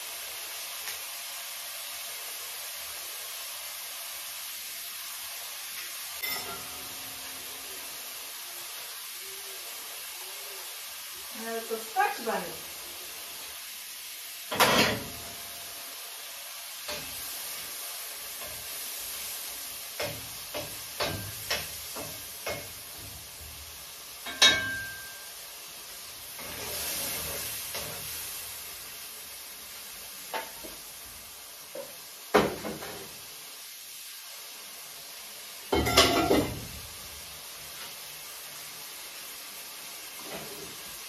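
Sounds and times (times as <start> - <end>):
shrimp sizzling in oil: 0.0 - 41.0
metal pots and lids clanking: 6.2 - 6.8, 24.2 - 25.2, 35.8 - 36.6.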